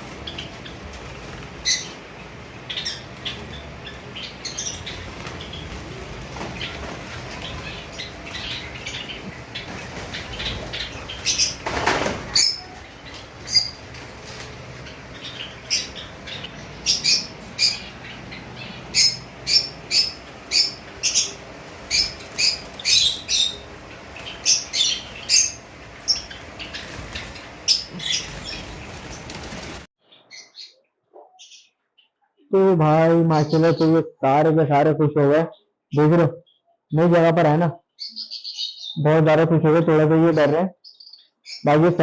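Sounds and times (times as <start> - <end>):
wings fluttering: 0.0 - 29.9
sparrows chirping: 0.0 - 42.0.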